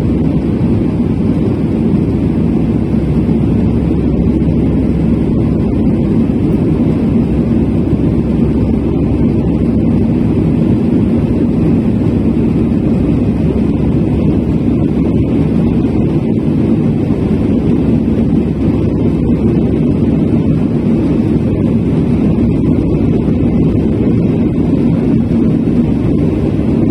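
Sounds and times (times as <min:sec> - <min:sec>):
faint hum: 0:00.0 - 0:26.9
jet engines and rushing air: 0:00.0 - 0:26.9.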